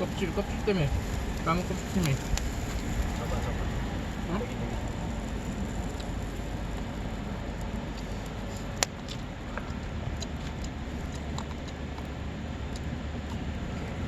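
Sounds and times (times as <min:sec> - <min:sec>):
campfire crackling: 0:00.0 - 0:14.0
low rumble: 0:00.0 - 0:14.0.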